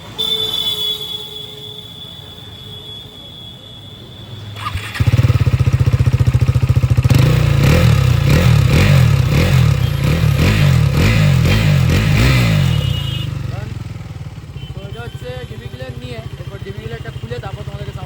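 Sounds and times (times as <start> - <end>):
motorcycle engine revving: 4.6 - 15.0.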